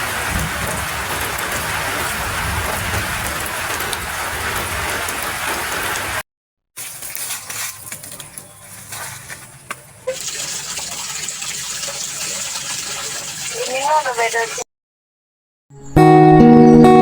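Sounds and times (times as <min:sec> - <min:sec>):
heavy rain hissing: 0:00.0 - 0:06.2, 0:10.1 - 0:14.6
light rain drips and splashes: 0:00.0 - 0:06.2, 0:06.8 - 0:14.6.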